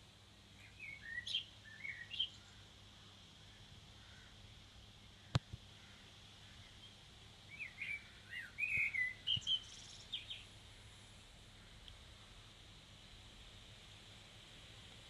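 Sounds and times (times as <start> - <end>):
faint background hum: 0.0 - 15.0
bird chirping: 0.6 - 2.6, 6.6 - 10.5.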